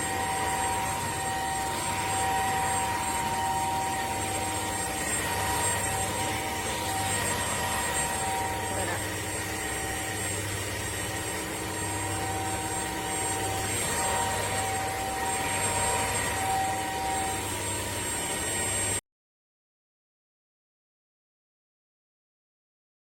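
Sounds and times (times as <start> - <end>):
floor cleaner motor whining: 0.0 - 19.0.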